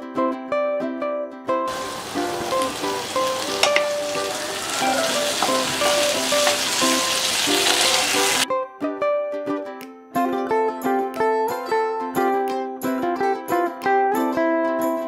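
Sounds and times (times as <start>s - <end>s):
vegetables sizzling in oil: 1.7s - 8.4s
spatula stirring and knocking: 3.5s - 7.9s.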